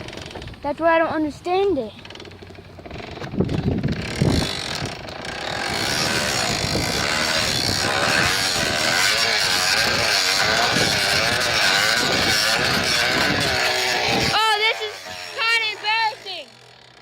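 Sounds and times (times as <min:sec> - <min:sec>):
bicycle brake rubbing on tire: 0:03.0 - 0:16.6.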